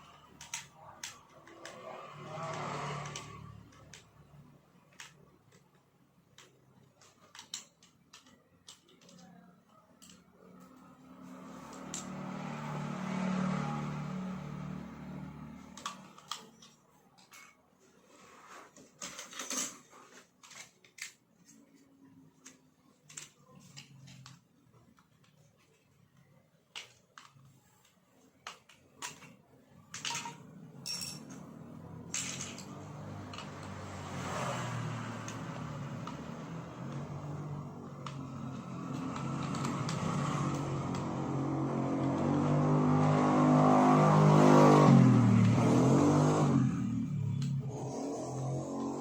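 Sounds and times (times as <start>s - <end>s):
small parts and tools clinking: 0.0s - 12.2s, 15.6s - 17.6s, 18.7s - 21.8s, 22.4s - 42.3s.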